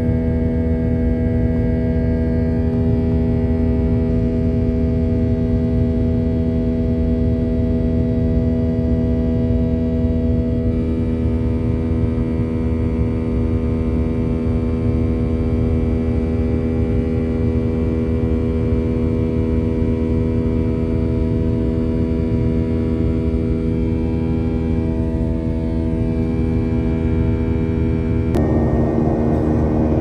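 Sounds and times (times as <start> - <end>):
airliner cabin hum: 28.3 - 30.0.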